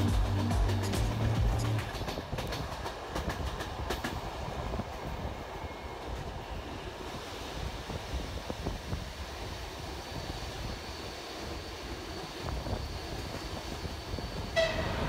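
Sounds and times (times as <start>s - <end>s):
train wheels clicking: 0.0s - 6.6s
train carriages rumbling: 0.0s - 15.0s.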